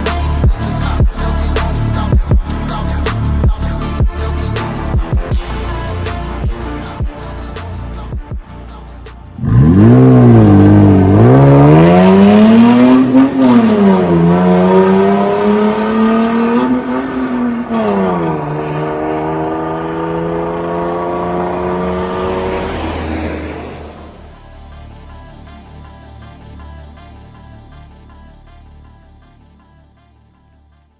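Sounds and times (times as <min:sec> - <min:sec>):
car engine revving: 0:09.3 - 0:24.7.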